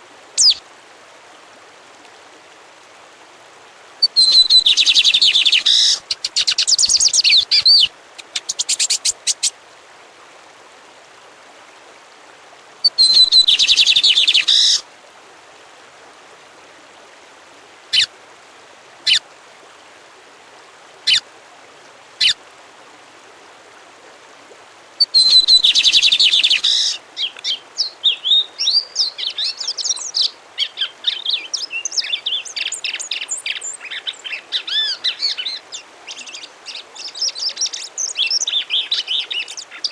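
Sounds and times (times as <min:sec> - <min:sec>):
faint steady hiss: 0:00.0 - 0:39.9
songbird singing: 0:00.4 - 0:00.6, 0:04.0 - 0:09.5, 0:12.8 - 0:14.8, 0:25.0 - 0:39.9.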